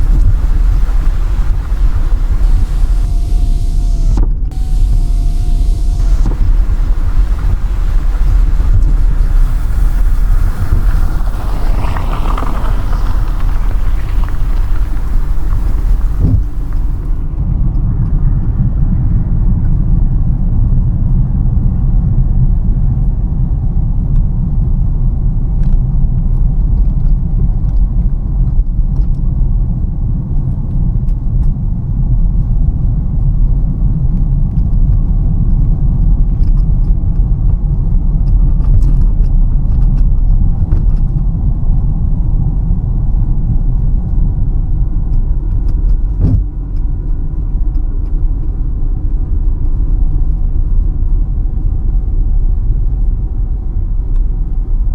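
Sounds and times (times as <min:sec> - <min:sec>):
rushing hiss: 0:00.0 - 0:17.2
road and engine rumble in car: 0:00.0 - 0:17.6.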